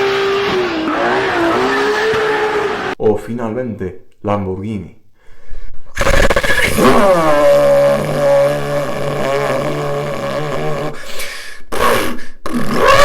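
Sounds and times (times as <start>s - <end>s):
person imitating car exhaust: 6.0s - 13.0s.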